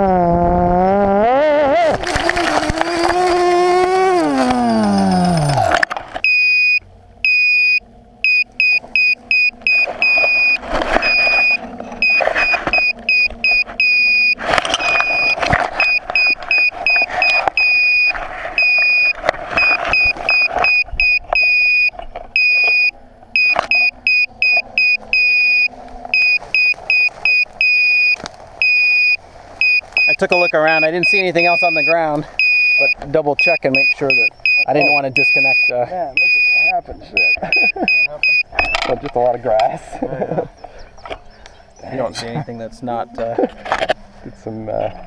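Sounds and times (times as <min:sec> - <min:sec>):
drone motors whining: 0:00.0 - 0:45.0
electronic beeper high beeps: 0:04.6 - 0:38.9.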